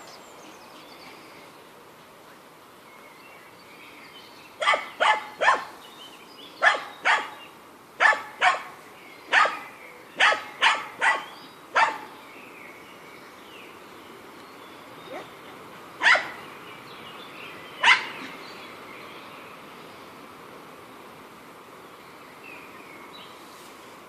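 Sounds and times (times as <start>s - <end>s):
dog barking: 4.6s - 5.7s, 6.6s - 7.4s, 8.0s - 8.7s, 9.3s - 12.1s, 16.0s - 16.4s, 17.8s - 18.2s.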